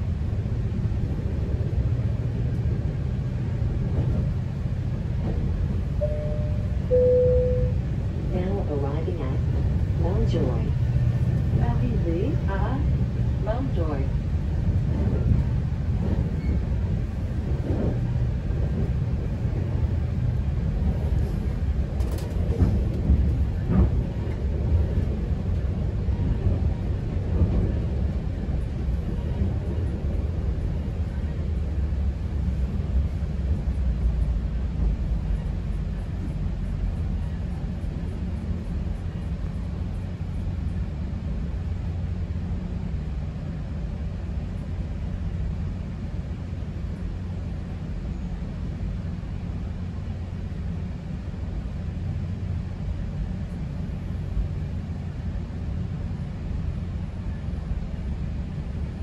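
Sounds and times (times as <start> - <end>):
train rumble inside coach: 0.0 - 59.0.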